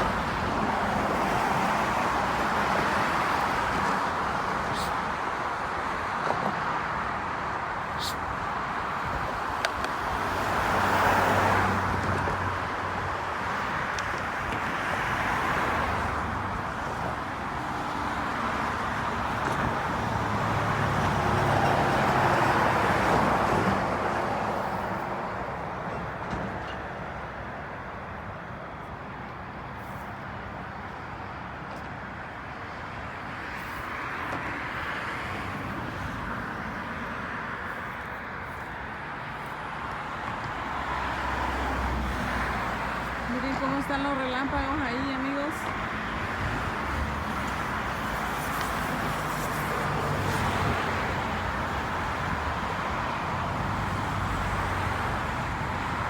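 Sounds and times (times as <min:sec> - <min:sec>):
cars passing: 0:00.0 - 0:56.0
low traffic hum: 0:00.0 - 0:56.0.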